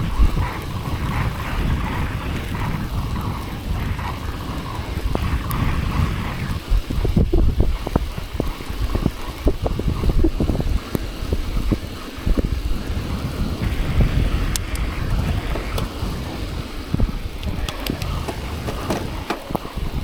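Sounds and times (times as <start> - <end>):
wind buffeting microphone: 0.0 - 20.0
short knocks and thumps: 17.5 - 19.6.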